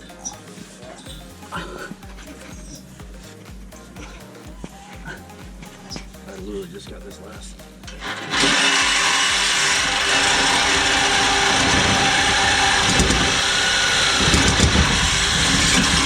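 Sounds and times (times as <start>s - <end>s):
power tool running: 7.8s - 16.0s.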